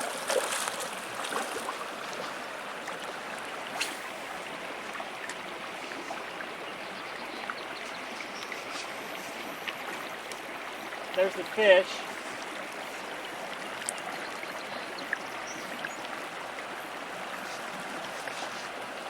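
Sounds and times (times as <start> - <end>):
river water rushing: 0.0 - 6.0.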